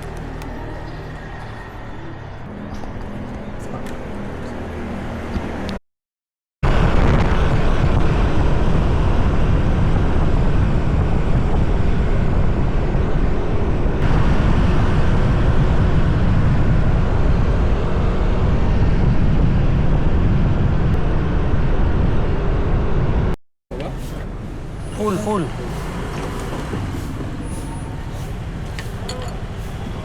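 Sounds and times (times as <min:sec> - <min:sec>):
wind rushing on microphone: 0:06.6 - 0:23.4
scooter engine: 0:23.8 - 0:30.0.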